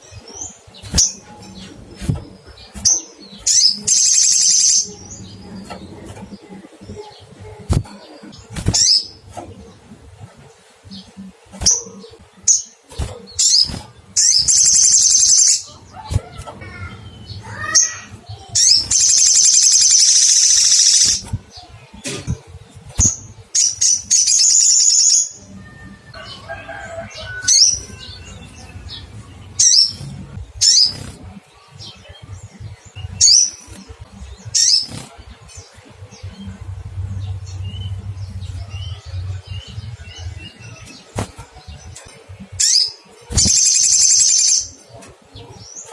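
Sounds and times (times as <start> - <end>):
buzzy bird trills: 0.0 - 22.0, 36.1 - 44.8
sharp bird calls: 10.9 - 22.3.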